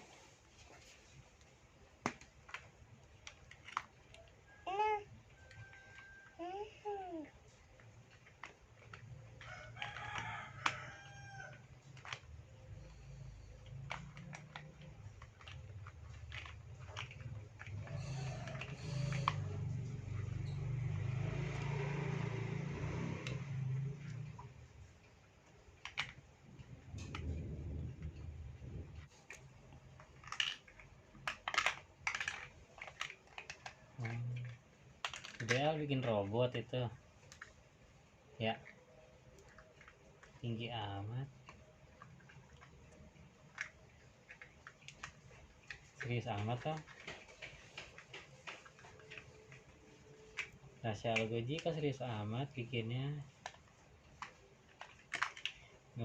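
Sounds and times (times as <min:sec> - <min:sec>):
plastic toy pieces clicking: 0:02.0 - 0:07.2, 0:08.0 - 0:12.3, 0:13.4 - 0:20.6, 0:25.8 - 0:26.2, 0:29.3 - 0:36.1, 0:38.5 - 0:40.6, 0:41.3 - 0:52.4, 0:53.3 - 0:56.0.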